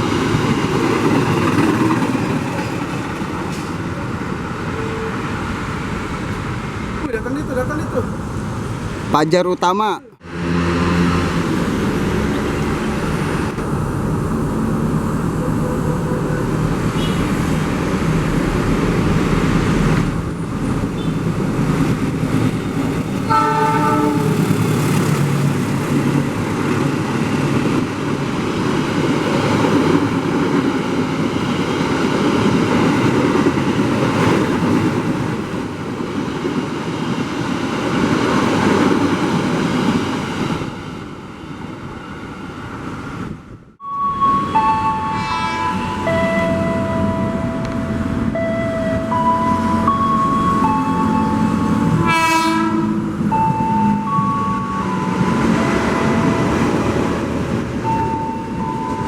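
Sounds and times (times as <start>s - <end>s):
train rumbling past: 0.0s - 59.0s
train horn blast: 4.8s - 5.2s, 15.5s - 17.5s, 23.2s - 24.8s, 43.9s - 49.9s, 51.5s - 53.2s.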